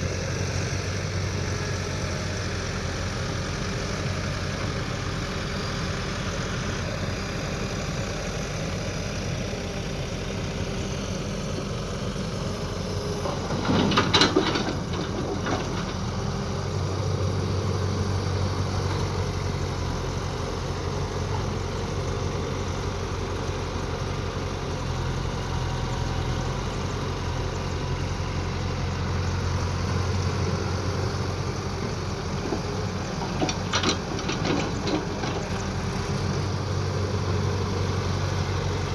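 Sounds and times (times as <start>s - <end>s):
excavator diesel engine running: 0.0s - 38.9s
clanking impacts: 13.2s - 16.0s.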